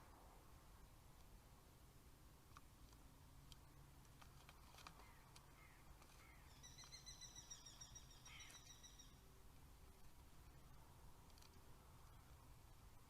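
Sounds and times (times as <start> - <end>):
rapid bird trill: 5.0 - 9.3.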